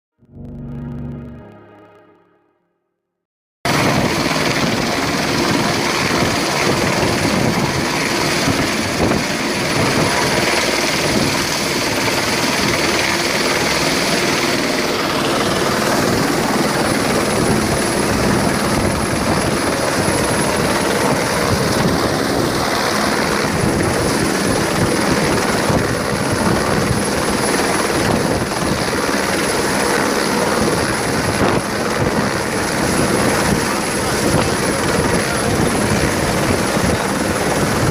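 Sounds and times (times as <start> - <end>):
turbine engine whine: 0.2 - 2.6
helicopter rotor chopping: 3.7 - 37.9.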